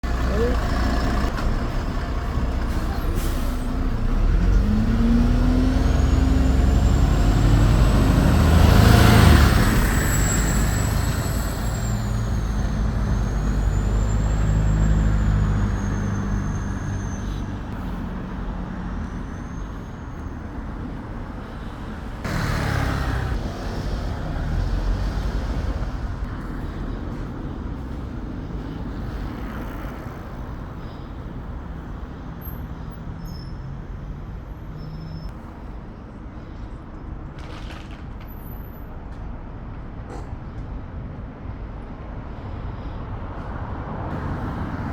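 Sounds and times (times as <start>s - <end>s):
road traffic passing: 0.0s - 44.9s
high wavering squeal: 9.4s - 17.7s.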